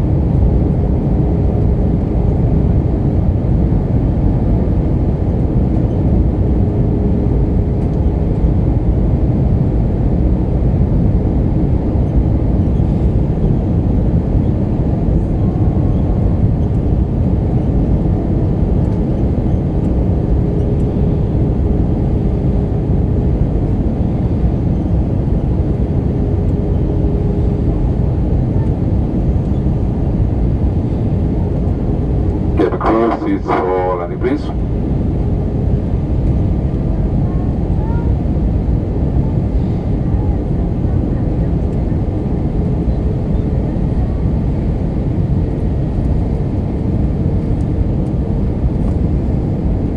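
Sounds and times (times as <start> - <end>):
airplane cabin rumble: 0.0 - 49.9
faint steady hum: 32.4 - 34.7.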